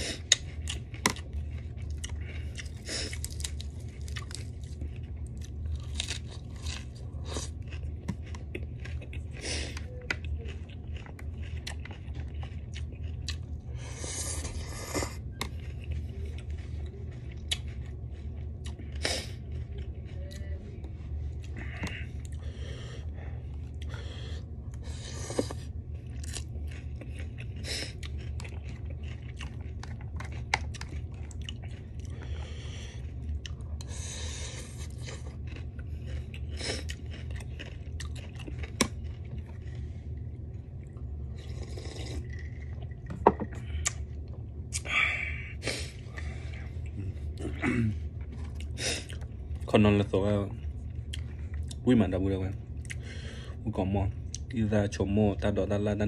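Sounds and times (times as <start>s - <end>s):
steady low hum: 0.0s - 56.0s
wet chewing and crunching: 0.0s - 56.0s.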